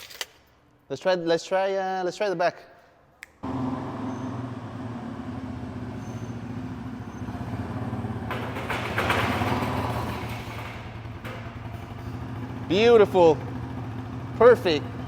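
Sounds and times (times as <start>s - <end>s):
quad engine running and revving: 3.4s - 15.0s.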